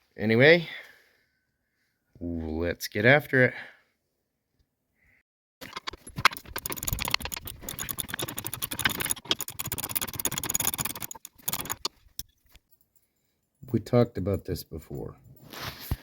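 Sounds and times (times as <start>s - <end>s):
hand tools clicking on metal: 5.6s - 12.6s.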